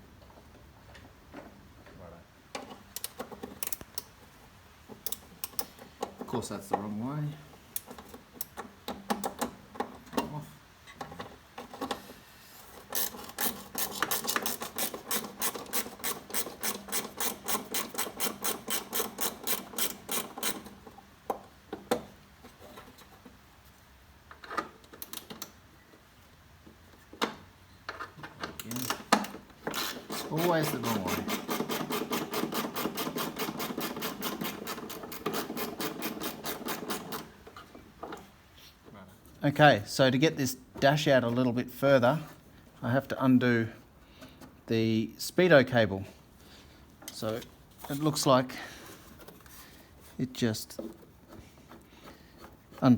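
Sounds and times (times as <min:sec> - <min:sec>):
tool clicking on a screw: 0:05.0 - 0:06.2, 0:12.8 - 0:22.0, 0:28.5 - 0:37.3
ratchet tool clicking: 0:12.9 - 0:20.6.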